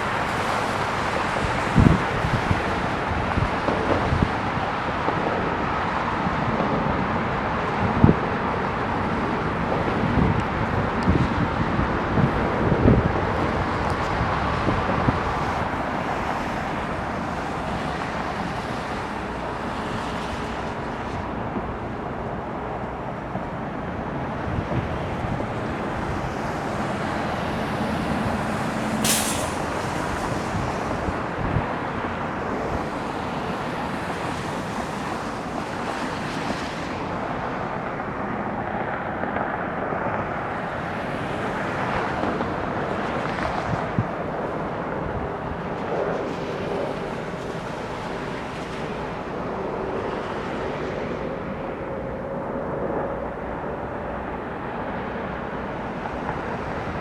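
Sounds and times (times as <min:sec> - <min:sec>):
jet engine noise: 0:00.0 - 0:57.0
brief sharp hiss: 0:28.9 - 0:30.5.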